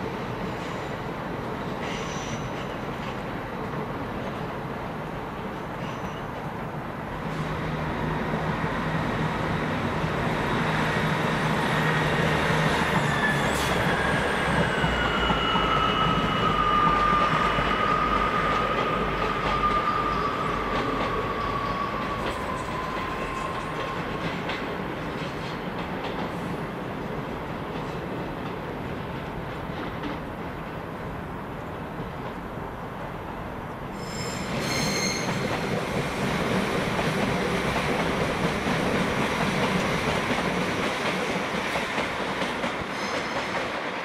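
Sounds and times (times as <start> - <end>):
train moving: 0.0 - 44.0
high squeal sliding down in pitch: 11.6 - 24.0, 34.0 - 35.6.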